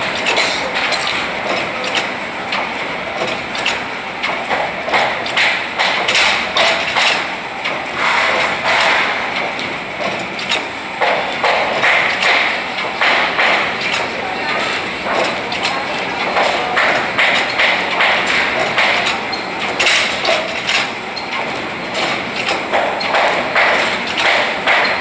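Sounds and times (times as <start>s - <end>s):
continuous noise: 0.0s - 25.0s.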